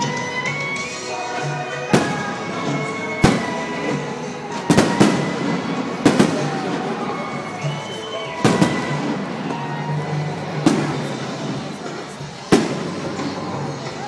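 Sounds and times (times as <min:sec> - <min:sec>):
fireworks bangs: 0:00.0 - 0:14.0
music: 0:00.0 - 0:14.0.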